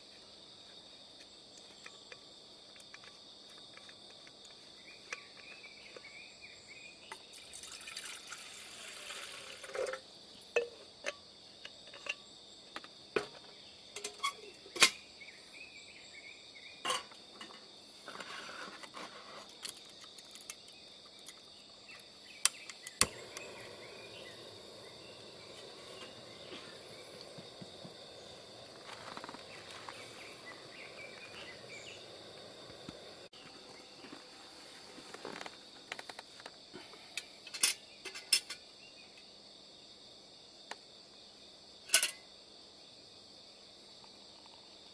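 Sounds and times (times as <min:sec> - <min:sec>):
insects chirring: 0:00.0 - 0:44.9
short rushing pouring noises: 0:07.4 - 0:09.8.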